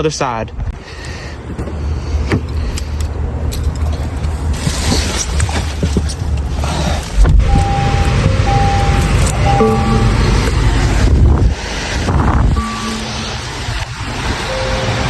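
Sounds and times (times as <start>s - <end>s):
car engine rumble: 0.6s - 15.0s
short electronic tones: 7.5s - 10.8s, 12.6s - 15.0s.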